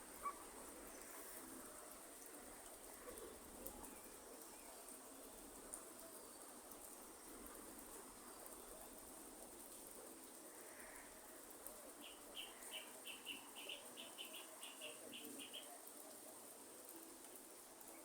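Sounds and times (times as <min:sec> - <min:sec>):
light rain hiss: 0:00.0 - 0:18.0
bird calls: 0:12.0 - 0:15.8.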